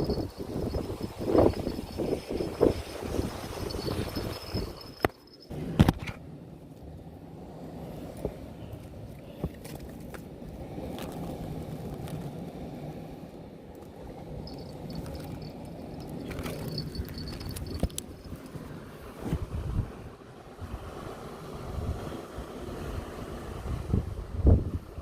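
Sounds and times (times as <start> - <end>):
wind on microphone: 0.0 - 5.9, 14.4 - 21.0, 21.6 - 25.0
sea: 0.0 - 25.0.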